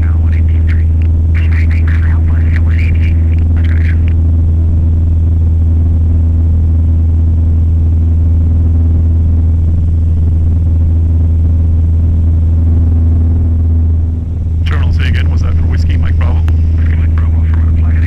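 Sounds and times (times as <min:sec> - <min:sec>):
light aircraft engine drone: 0:00.0 - 0:18.0.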